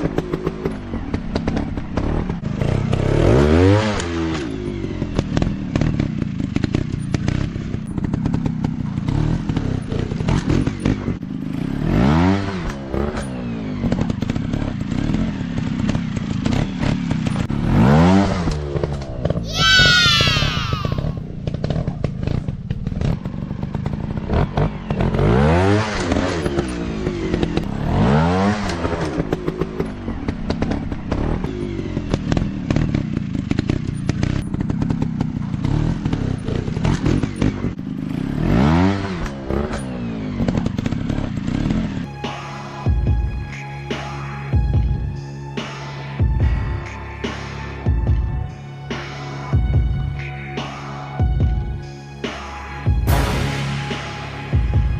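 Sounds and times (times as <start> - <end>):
dirt-bike engines revving: 0.0 - 42.1.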